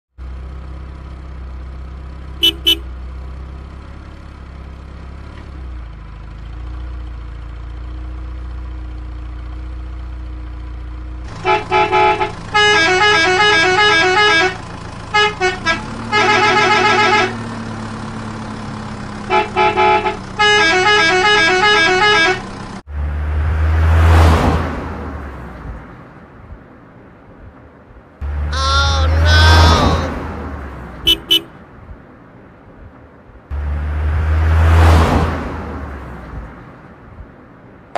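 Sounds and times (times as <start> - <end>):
cartoon horn double beep: 2.4 - 2.9, 31.1 - 31.5.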